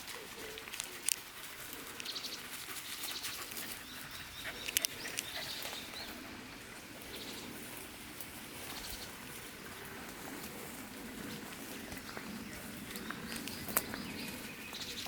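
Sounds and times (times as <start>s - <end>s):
songbirds chirping: 0.0s - 15.0s
footsteps on wet trail: 7.9s - 15.0s.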